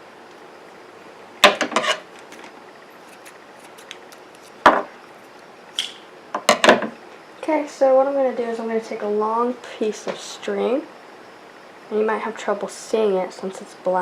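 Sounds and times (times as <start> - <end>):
small objects knocking on desk: 4.6 - 4.9.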